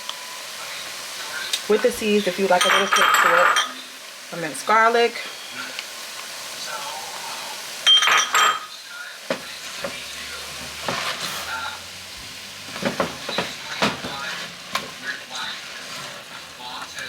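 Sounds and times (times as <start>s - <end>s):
vegetables sizzling in a pot: 0.0s - 17.0s
spoon stirring and scraping: 7.9s - 17.0s.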